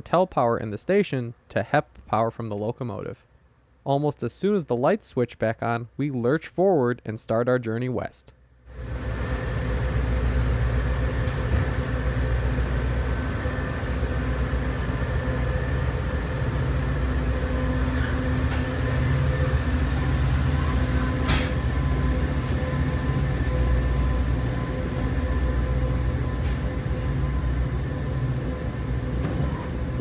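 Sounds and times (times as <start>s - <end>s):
constant hum: 0.0s - 30.0s
train car rumbling: 8.7s - 30.0s.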